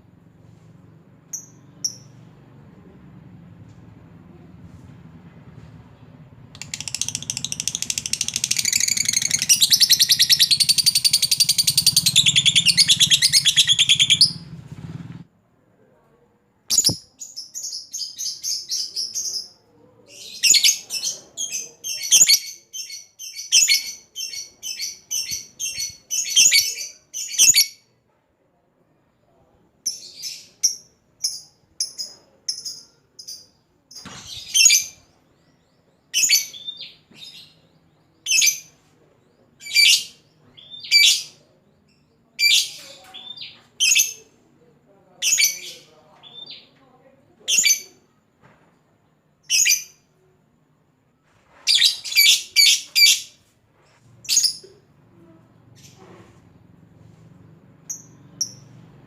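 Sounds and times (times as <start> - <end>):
bird chattering chirps: 6.6 - 14.4, 16.7 - 17.0.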